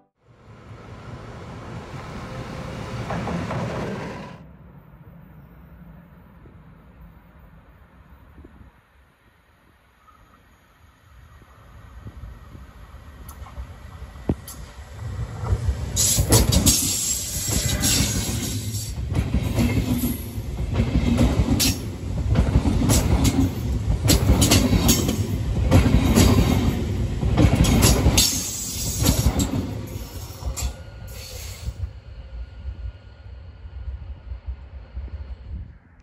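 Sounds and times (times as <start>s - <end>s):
quiet train rumble: 0.0s - 36.0s
train wheels clattering: 14.3s - 31.8s.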